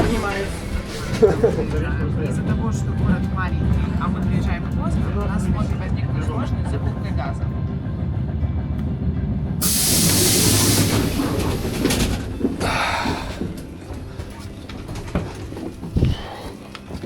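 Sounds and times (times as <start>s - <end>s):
train rumble: 0.0s - 17.0s
train air hiss: 9.6s - 13.6s.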